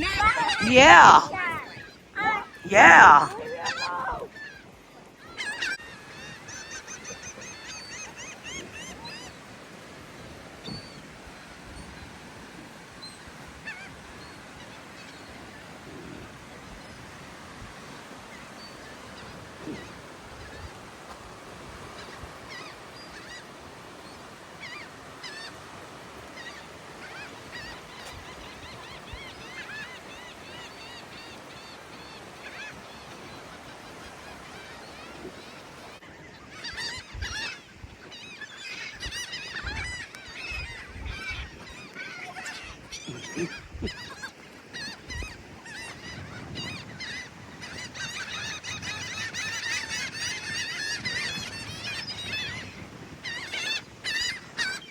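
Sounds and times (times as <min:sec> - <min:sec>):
seagulls squawking: 0:00.0 - 0:09.7, 0:21.8 - 0:54.9.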